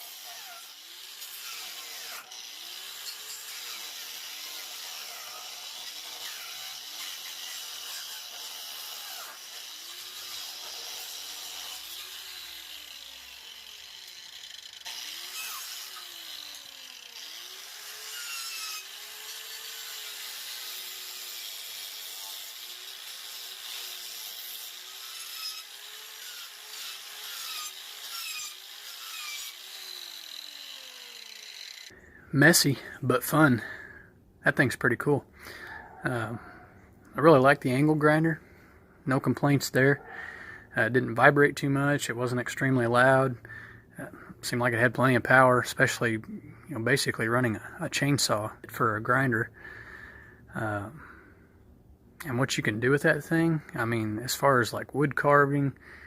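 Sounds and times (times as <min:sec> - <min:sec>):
angle grinder motor whine: 0:08.3 - 0:20.8, 0:24.9 - 0:32.0.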